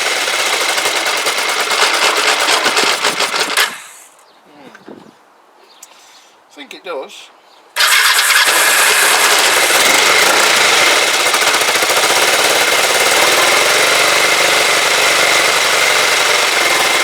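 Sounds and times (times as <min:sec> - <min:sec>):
motorcycle engine running: 0:00.0 - 0:03.5, 0:07.8 - 0:17.0.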